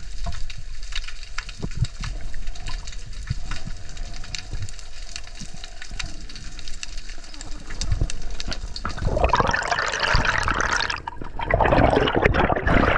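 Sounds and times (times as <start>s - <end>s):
faint clicks: 0.0s - 9.1s
water bubbling and splashing: 0.0s - 12.9s.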